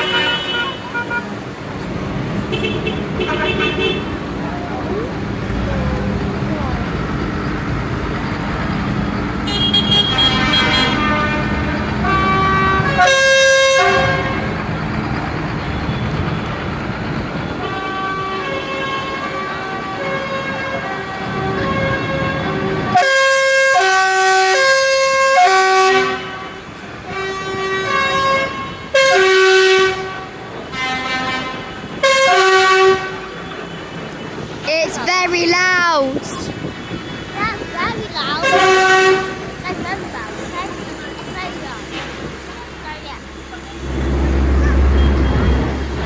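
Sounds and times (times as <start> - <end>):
tractor horns: 0.0 - 1.4, 2.4 - 4.4, 9.4 - 14.6, 17.4 - 35.0, 38.3 - 39.6
tractor engine rumble: 1.2 - 17.7.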